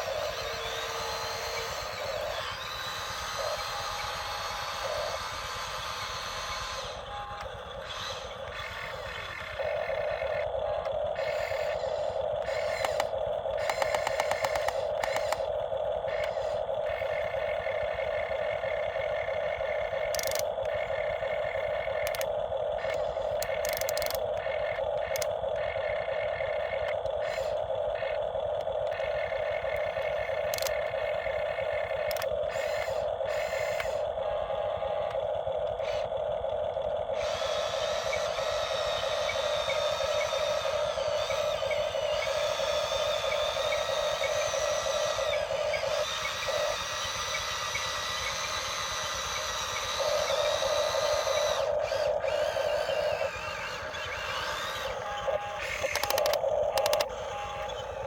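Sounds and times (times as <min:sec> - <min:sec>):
excavator whining: 0:00.0 - 0:58.0.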